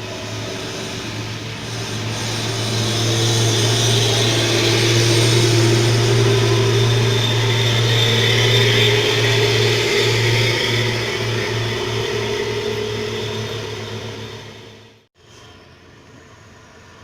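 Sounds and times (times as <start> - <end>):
truck engine pulling uphill: 0.0 - 15.1.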